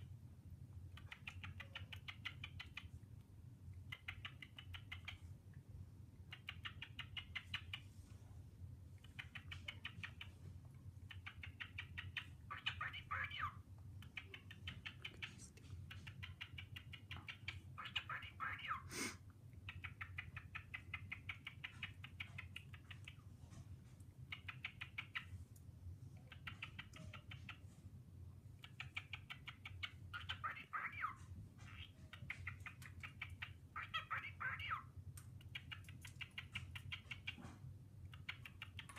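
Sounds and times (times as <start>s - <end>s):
cockatiel chattering: 1.0s - 3.0s, 3.9s - 5.2s, 6.3s - 7.9s, 9.0s - 10.4s, 11.0s - 18.9s, 19.6s - 23.2s, 24.3s - 25.3s, 26.2s - 27.6s, 28.6s - 37.5s, 38.1s - 38.9s.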